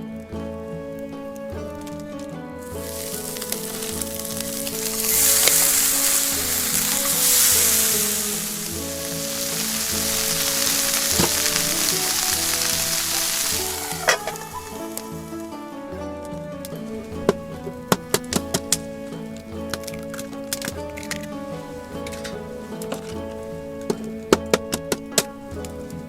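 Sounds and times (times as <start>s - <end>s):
background music: 0.0s - 26.0s
food sizzling in a pan: 2.9s - 15.2s.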